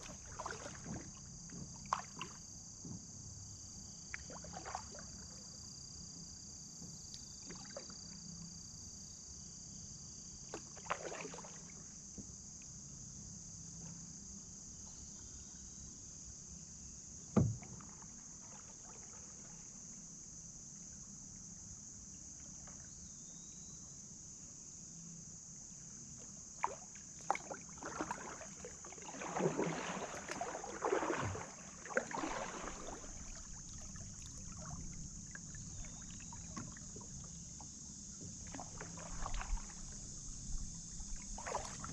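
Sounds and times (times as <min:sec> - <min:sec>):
paddle splashes and drips: 0:00.0 - 0:03.0, 0:03.9 - 0:05.5, 0:06.8 - 0:08.2, 0:10.4 - 0:12.8, 0:17.3 - 0:19.9, 0:22.1 - 0:23.0, 0:26.2 - 0:41.9.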